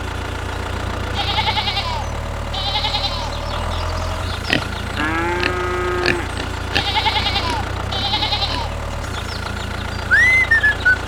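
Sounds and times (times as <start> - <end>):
low engine hum: 0.0 - 11.0
sheep bleating: 1.1 - 9.2.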